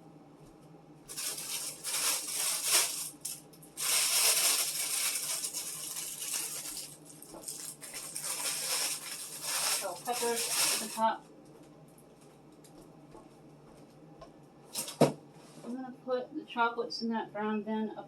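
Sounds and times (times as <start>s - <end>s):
plastic packaging crinkling: 1.1s - 11.1s.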